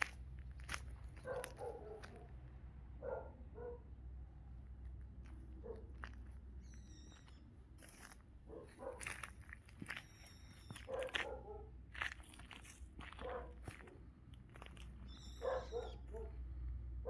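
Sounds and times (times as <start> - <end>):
dog barking faintly: 1.2 - 2.4, 8.5 - 9.2, 10.8 - 11.8, 13.2 - 14.0, 15.4 - 16.4.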